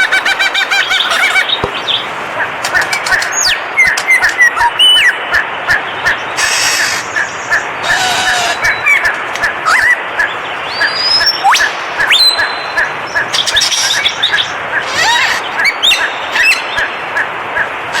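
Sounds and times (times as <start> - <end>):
high bird chirps: 9.7 - 16.9.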